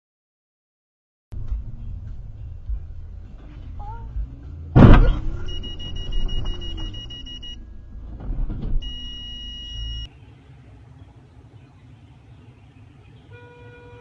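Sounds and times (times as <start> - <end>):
car engine rumble: 1.3 - 14.0
loud crash bang: 4.8 - 6.5
high electronic beep tone: 5.4 - 7.6, 8.8 - 10.1.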